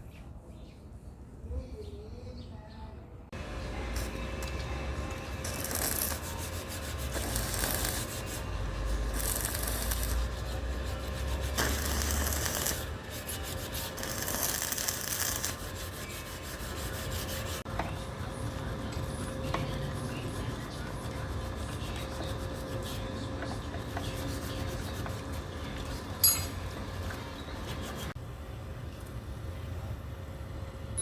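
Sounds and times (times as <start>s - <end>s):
harsh rasping metalworking: 3.9s - 28.2s.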